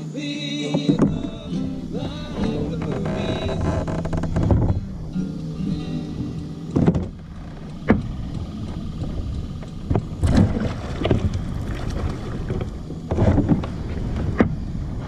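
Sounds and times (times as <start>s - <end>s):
low rumble of wind and water: 0.0s - 15.0s
knocks against kayak hull: 0.7s - 1.4s, 6.8s - 7.2s, 7.8s - 9.3s, 9.9s - 14.6s
water splashing: 6.8s - 15.0s.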